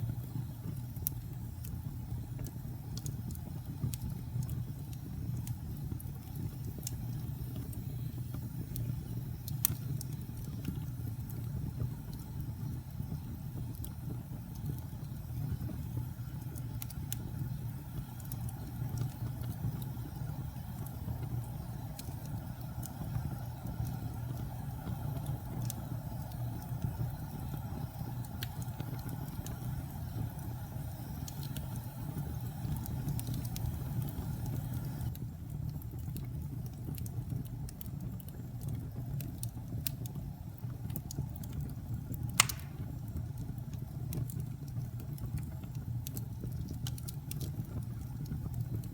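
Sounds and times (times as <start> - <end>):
fire rumbling: 0.0 - 48.9
wood fire crackling: 0.0 - 48.9
sharp pop of burning wood: 42.2 - 43.2.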